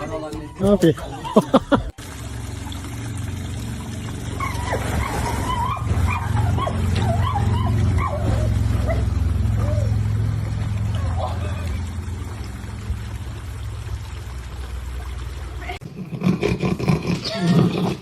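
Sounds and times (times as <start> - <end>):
dog whining and yipping: 4.4 - 10.0.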